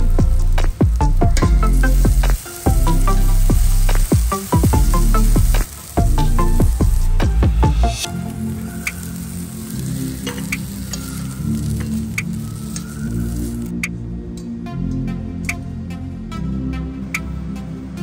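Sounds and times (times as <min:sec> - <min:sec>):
food sizzling in oil: 0:00.0 - 0:13.8
background music: 0:00.0 - 0:18.0.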